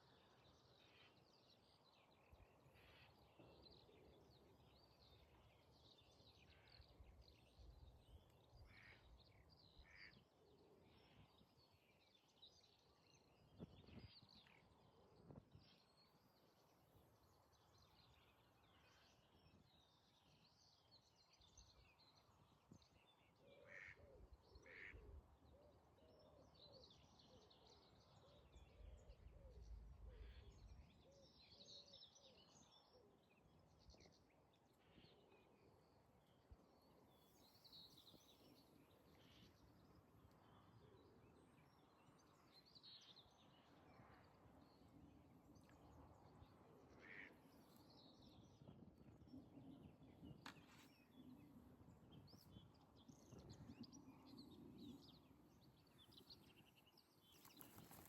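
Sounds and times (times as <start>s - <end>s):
wild birds singing: 0.0s - 58.0s
wind rumble on microphone: 13.4s - 14.4s, 48.0s - 58.0s.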